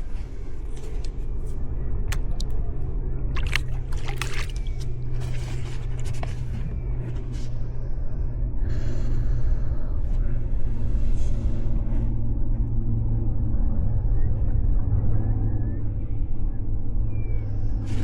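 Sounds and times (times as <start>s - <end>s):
steady low rumble: 0.0s - 18.0s
paddle splashes and drips: 2.1s - 2.6s, 3.4s - 5.5s.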